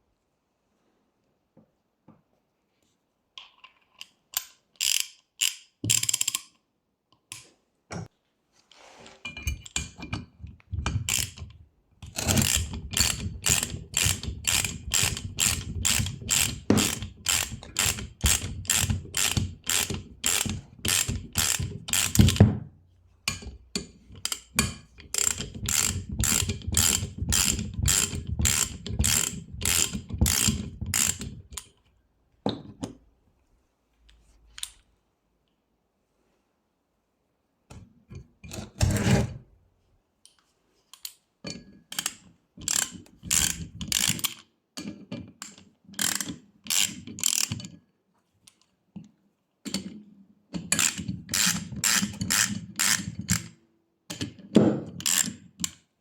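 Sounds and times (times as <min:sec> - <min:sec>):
ratchet wrench clicking: 0:04.4 - 0:06.5, 0:12.2 - 0:22.4, 0:24.2 - 0:31.7, 0:41.9 - 0:44.4, 0:46.0 - 0:47.6, 0:50.8 - 0:53.5, 0:55.0 - 0:55.3.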